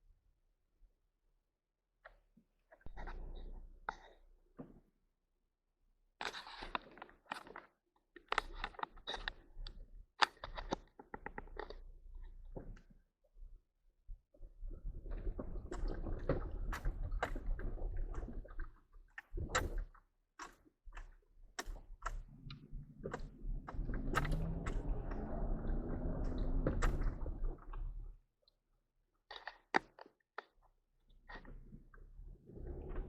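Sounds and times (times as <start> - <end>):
clicks: 20.4 - 27.8
low engine rumble: 22.2 - 28.0.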